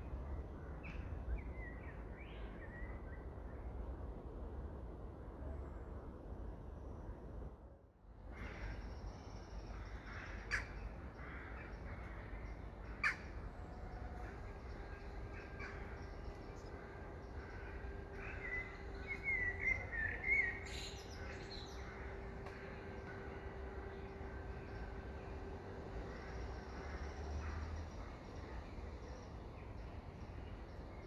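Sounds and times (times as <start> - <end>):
bird warbling song: 17.7 - 22.1.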